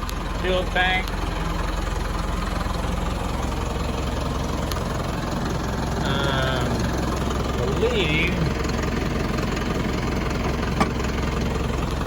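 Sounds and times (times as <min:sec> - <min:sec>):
truck diesel engine idling: 0:00.0 - 0:12.0.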